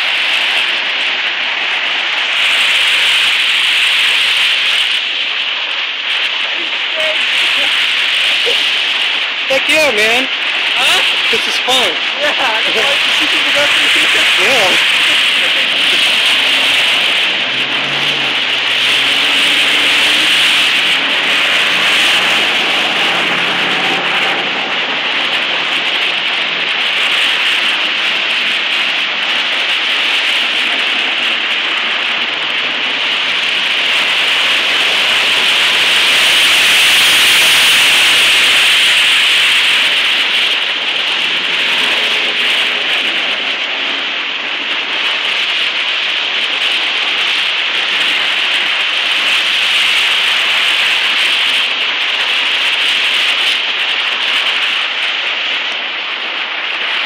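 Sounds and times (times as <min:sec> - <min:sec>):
tyres splashing through flood water: 0:00.0 - 0:57.0.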